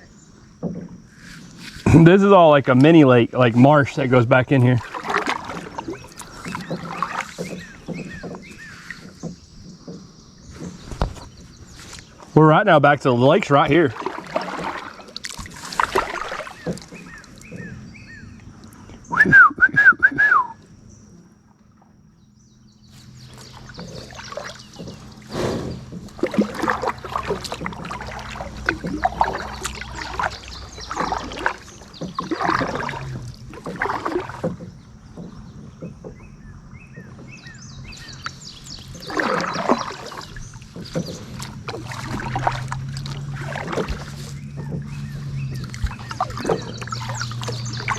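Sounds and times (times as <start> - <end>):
kayak paddles in water: 0.0 - 47.9
wavering whistle: 19.1 - 20.6.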